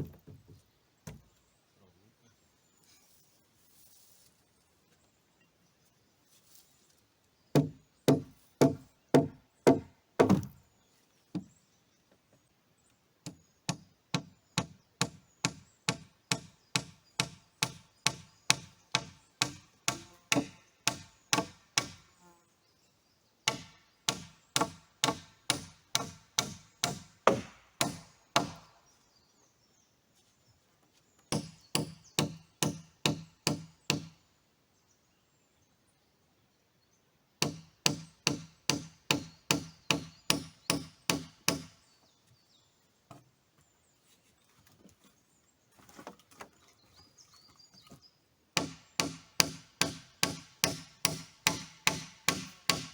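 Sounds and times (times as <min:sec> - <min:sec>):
axe hammering nails into wood: 0:07.5 - 0:10.6, 0:13.2 - 0:22.1, 0:23.4 - 0:28.8, 0:31.3 - 0:34.2, 0:37.4 - 0:41.8, 0:48.6 - 0:52.9.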